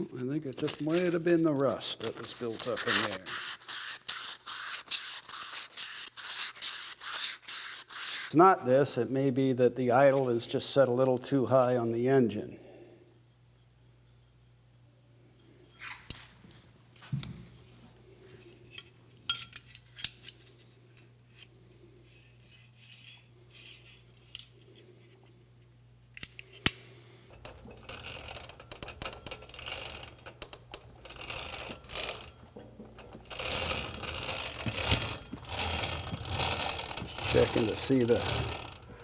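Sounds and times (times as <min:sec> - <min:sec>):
metallic clicks and clinks: 0:27.3 - 0:39.0
ratchet-like clicking and clattering: 0:27.3 - 0:39.0.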